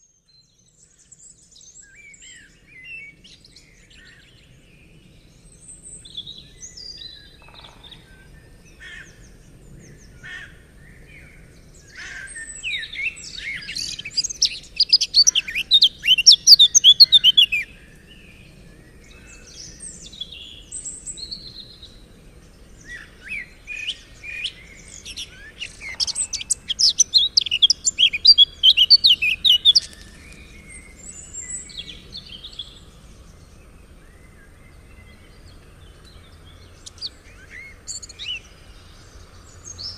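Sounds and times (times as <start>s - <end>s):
songbird singing: 0.0s - 39.9s
soft bird chirps: 11.9s - 39.9s.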